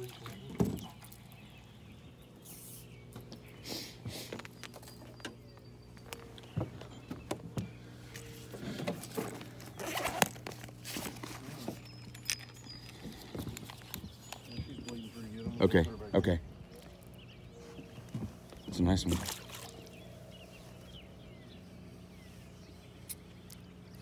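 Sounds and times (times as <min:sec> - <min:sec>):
steady low hum: 0:00.0 - 0:24.0
knocks and clicks of gear: 0:04.3 - 0:15.0.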